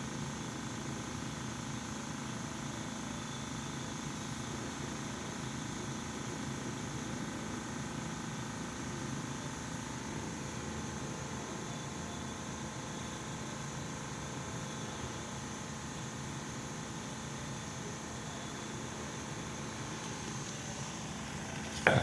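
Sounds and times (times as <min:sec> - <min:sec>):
steady background hum: 0:17.8 - 0:22.0
even hiss: 0:20.7 - 0:22.0.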